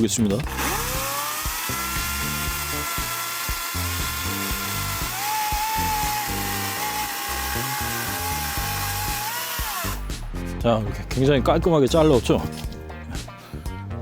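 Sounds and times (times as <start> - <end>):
background music: 0.0 - 14.0
chainsaw cutting a log: 0.4 - 10.2.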